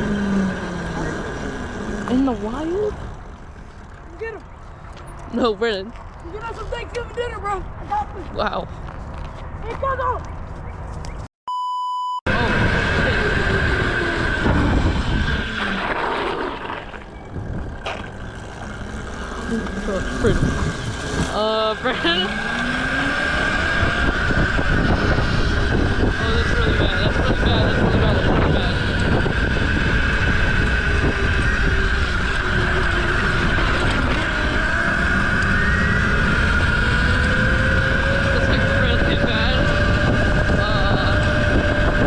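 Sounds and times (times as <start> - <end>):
mini bike motor whining: 0.0 - 5.6, 12.3 - 42.0
low rumble: 12.3 - 42.0.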